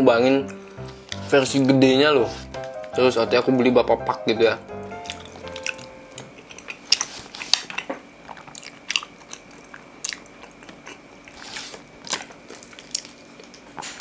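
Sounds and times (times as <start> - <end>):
wet chewing sounds: 4.9 - 14.0.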